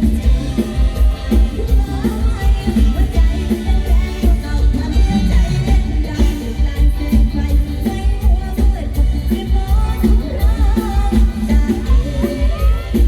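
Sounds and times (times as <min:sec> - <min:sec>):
heavy steady bass beat: 0:00.0 - 0:13.0
live band music: 0:00.0 - 0:13.0
person singing: 0:00.0 - 0:13.0.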